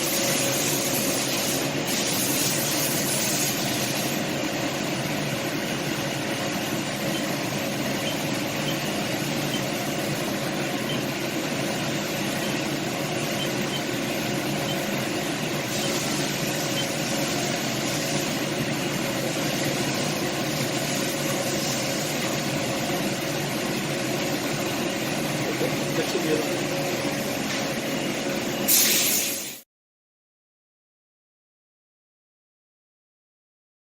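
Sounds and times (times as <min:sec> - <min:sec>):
machine hiss: 0:00.0 - 0:04.4, 0:06.8 - 0:22.9, 0:28.6 - 0:29.6
machine hum with held tones: 0:00.0 - 0:28.7.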